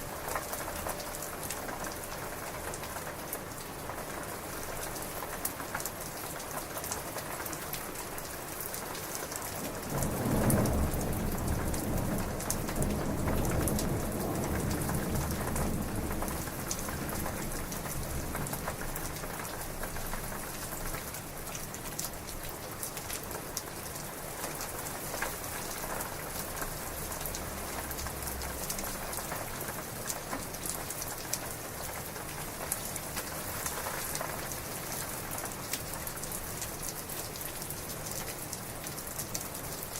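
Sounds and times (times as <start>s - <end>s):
heavy rain falling: 0.0s - 39.9s
thunder rumbling: 9.6s - 20.4s.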